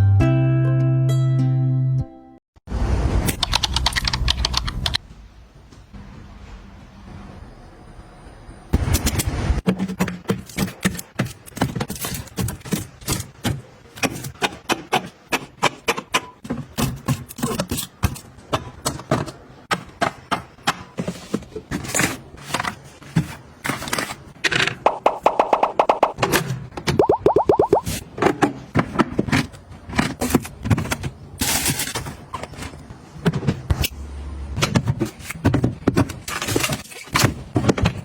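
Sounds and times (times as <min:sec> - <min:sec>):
items clicking and tapping: 0:09.6 - 0:27.1, 0:27.7 - 0:33.8, 0:34.6 - 0:38.0.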